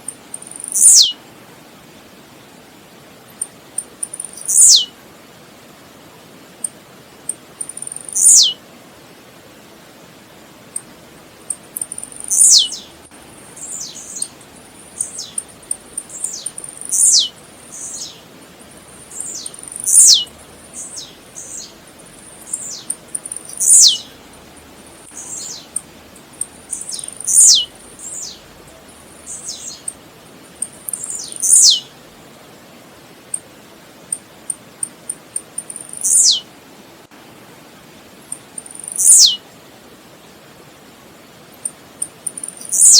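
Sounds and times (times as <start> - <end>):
bird singing falling notes: 11.8 - 12.9, 13.6 - 18.2, 19.0 - 24.1.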